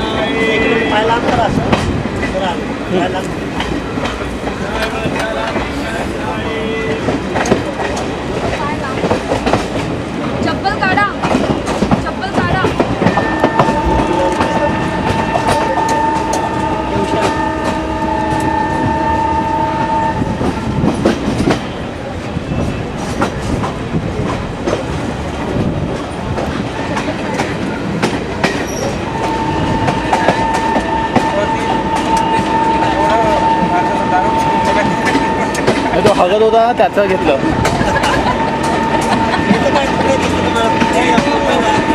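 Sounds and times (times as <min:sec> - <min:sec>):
train horn blast: 0:00.0 - 0:01.3, 0:06.3 - 0:07.4, 0:12.7 - 0:21.1, 0:28.8 - 0:41.9
train rumbling: 0:00.0 - 0:41.9
wheels clicking over rail joints: 0:07.1 - 0:18.5.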